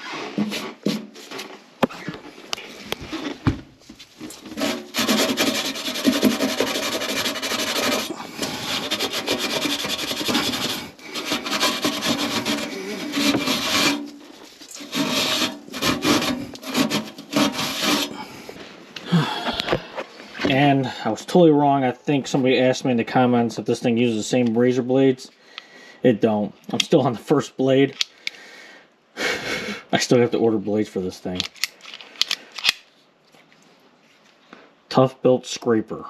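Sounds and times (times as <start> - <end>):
hand tool rasping: 4.3 - 18.2.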